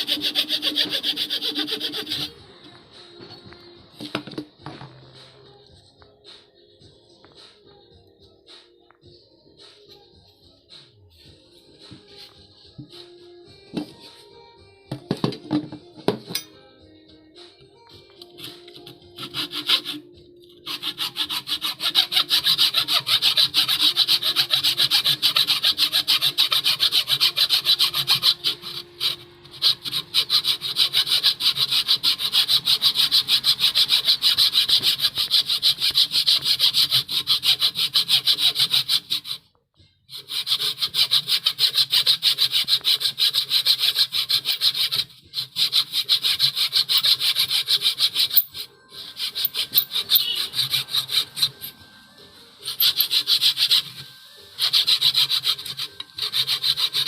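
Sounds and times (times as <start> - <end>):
hand saw cutting wood: 0.0 - 2.4, 18.3 - 39.4, 40.1 - 51.7, 52.6 - 57.0.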